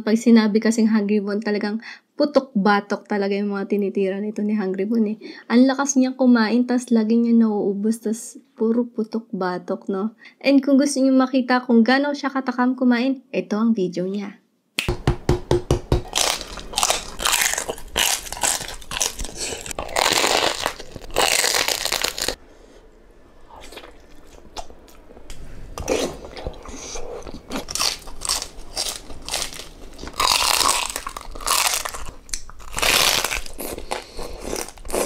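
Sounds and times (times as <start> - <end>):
crunching and chewing: 16.0 - 22.4, 23.5 - 35.0.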